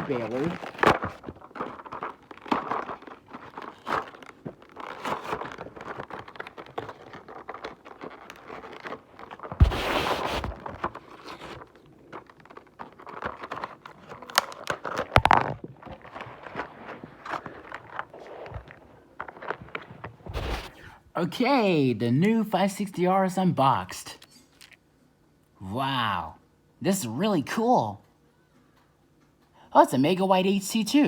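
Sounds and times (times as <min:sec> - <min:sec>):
packaging crinkling and rustling: 0:00.0 - 0:20.8.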